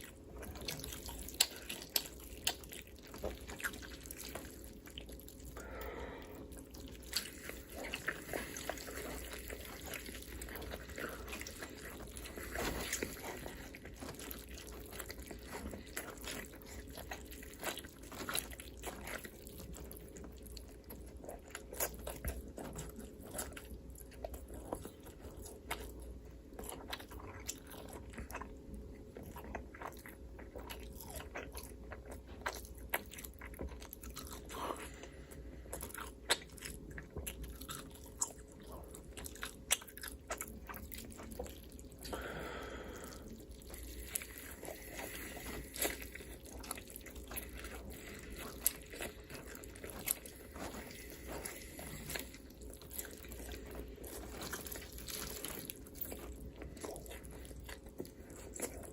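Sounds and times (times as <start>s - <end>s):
crunchy chewing: 0.0s - 58.9s.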